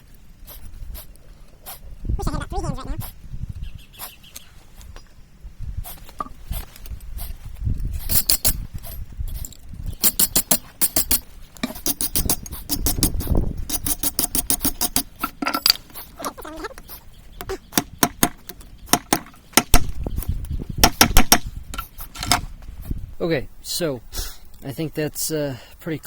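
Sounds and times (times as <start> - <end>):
hammer striking hot steel on anvil: 10.0 - 15.8.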